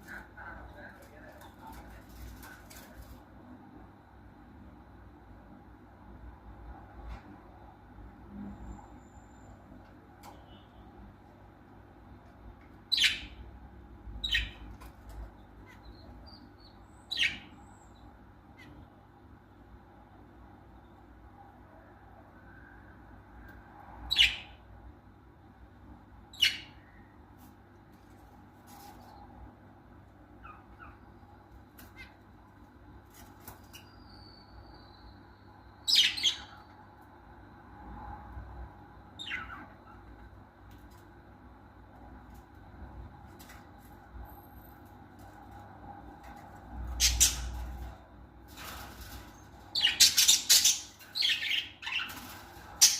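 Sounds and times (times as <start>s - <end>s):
birds chirping softly: 0.0s - 3.7s, 5.6s - 52.9s
faint bird chirps: 33.6s - 36.8s.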